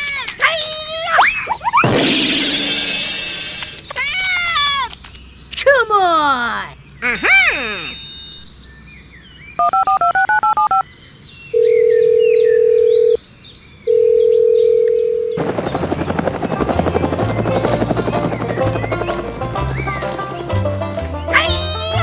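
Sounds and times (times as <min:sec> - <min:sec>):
music: 0:15.7 - 0:22.0.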